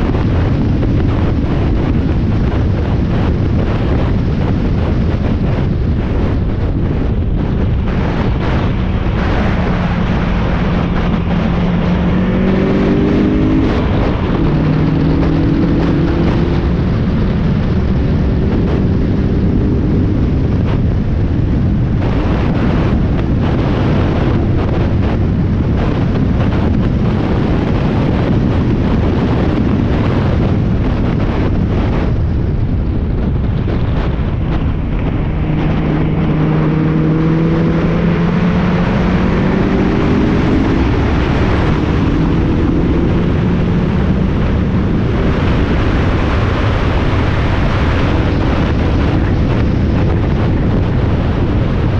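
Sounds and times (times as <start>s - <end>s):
wind and road noise: 0.0s - 51.9s
race car engine revving: 6.6s - 20.8s, 33.6s - 50.8s.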